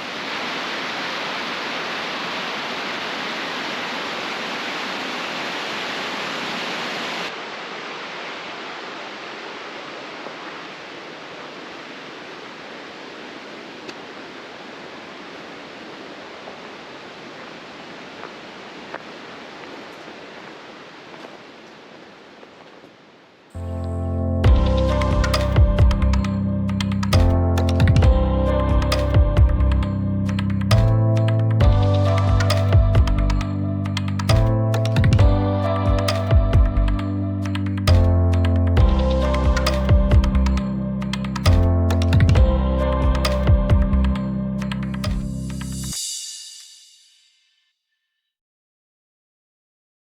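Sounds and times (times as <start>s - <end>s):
waterfall rushing: 0.0s - 23.3s.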